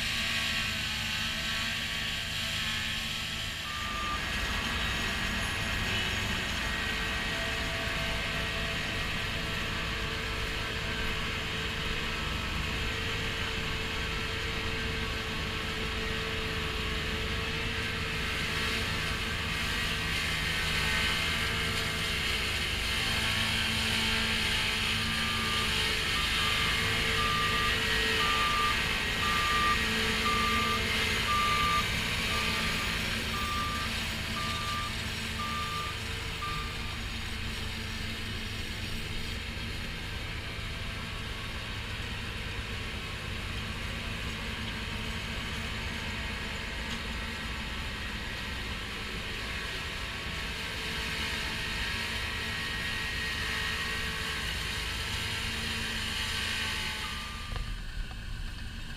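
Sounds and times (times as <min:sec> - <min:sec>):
combine harvester running: 0:00.0 - 0:58.9
electronic warning beeper: 0:57.0 - 0:57.8.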